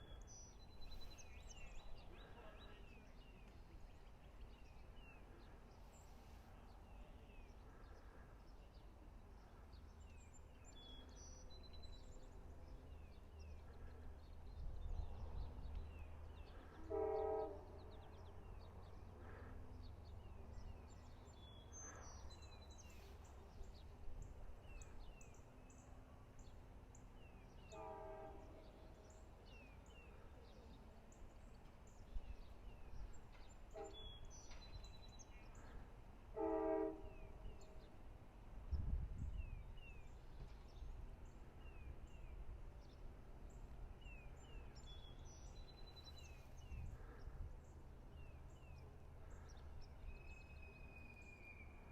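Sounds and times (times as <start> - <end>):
diesel locomotive horn blasts: 16.6 - 18.1, 27.7 - 29.0, 33.7 - 34.4, 36.3 - 37.8.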